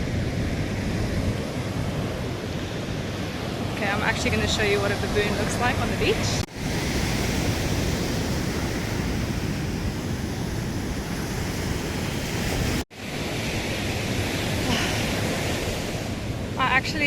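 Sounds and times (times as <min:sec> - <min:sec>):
wind buffeting microphone: 0:00.0 - 0:12.8
ocean surf washing on beach: 0:00.0 - 0:17.0.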